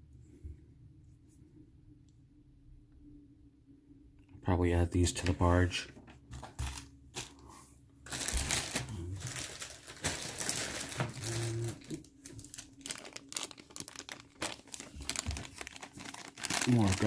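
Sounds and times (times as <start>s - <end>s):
plastic bags crinkling: 6.3s - 7.4s, 8.0s - 17.0s.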